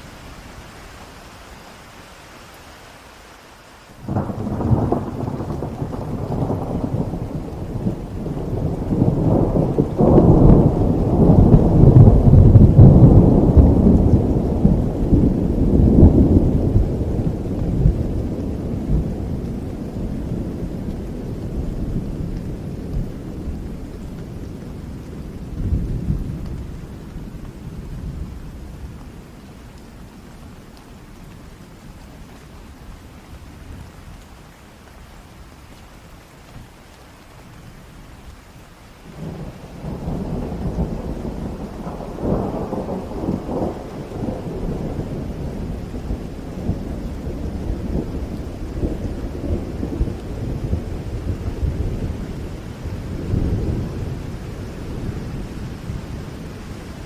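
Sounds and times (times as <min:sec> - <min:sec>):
rain hiss: 0:00.0 - 0:57.0
thunder rumbling: 0:04.0 - 0:30.3, 0:39.1 - 0:57.0.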